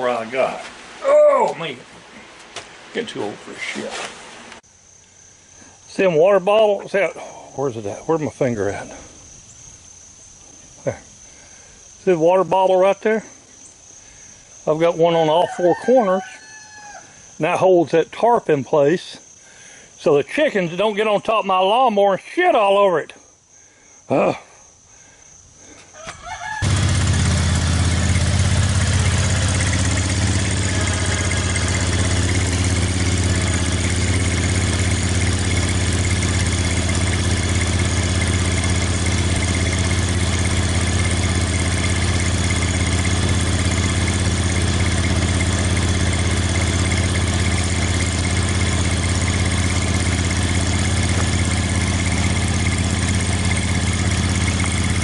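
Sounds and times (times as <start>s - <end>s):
mower engine starting and running: 26.5s - 55.0s.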